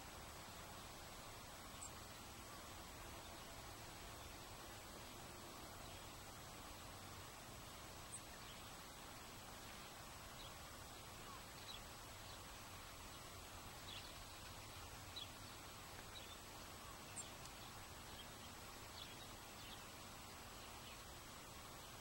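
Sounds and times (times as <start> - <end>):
steady low hiss: 0.0 - 22.0
faint bird chirps: 1.6 - 2.1.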